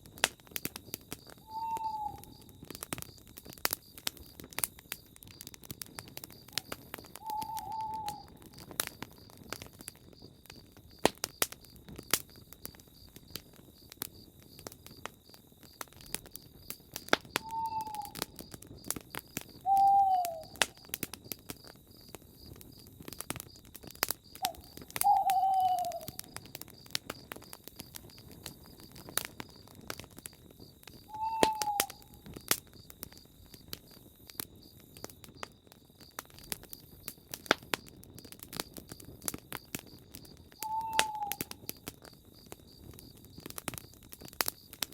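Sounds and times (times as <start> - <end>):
campfire crackling and popping: 0.0 - 44.9
bird call: 1.4 - 2.5, 7.2 - 8.4, 17.4 - 18.2, 19.6 - 20.6, 24.4 - 26.3, 31.1 - 32.2, 40.6 - 41.5.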